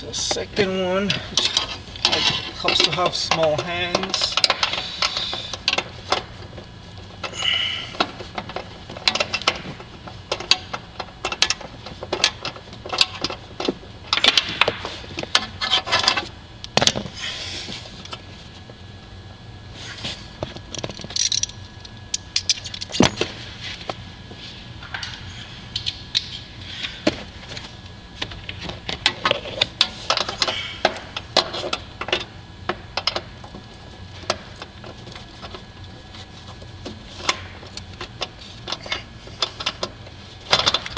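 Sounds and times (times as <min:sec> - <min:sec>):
hand tool clicking and clattering: 0:20.7 - 0:21.6.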